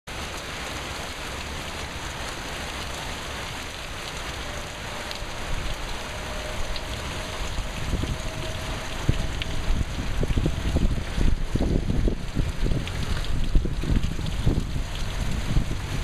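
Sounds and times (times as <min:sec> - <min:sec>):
heavy rain pouring: 0:00.1 - 0:16.0
wind buffeting microphone: 0:05.1 - 0:16.0.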